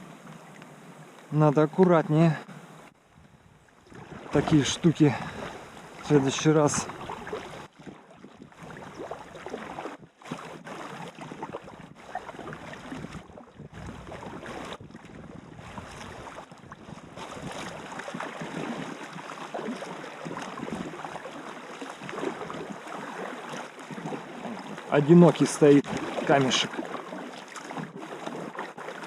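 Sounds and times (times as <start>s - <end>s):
wind on microphone: 2.7s - 21.3s, 23.9s - 27.0s
river water rushing: 4.0s - 7.7s, 17.5s - 29.0s.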